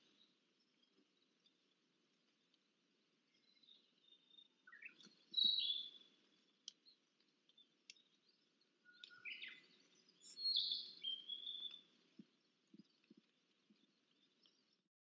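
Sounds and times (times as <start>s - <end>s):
bird singing whistled notes: 3.3s - 6.2s, 7.6s - 13.0s.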